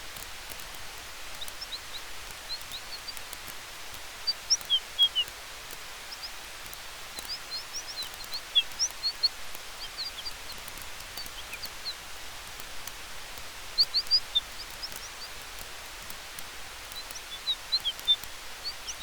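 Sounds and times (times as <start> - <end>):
campfire hissing: 0.0 - 19.0
fire crackling snaps: 0.0 - 19.0
high chirps: 4.2 - 5.3, 7.2 - 12.0.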